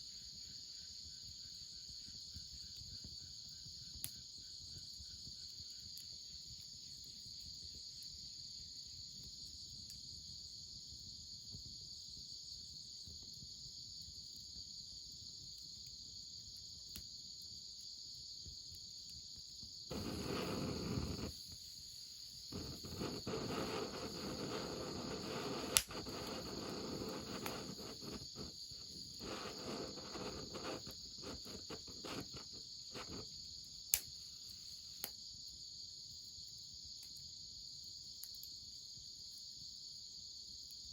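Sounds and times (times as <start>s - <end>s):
crickets chirring: 0.0s - 40.9s
rustling noise: 19.9s - 21.6s, 22.5s - 33.3s.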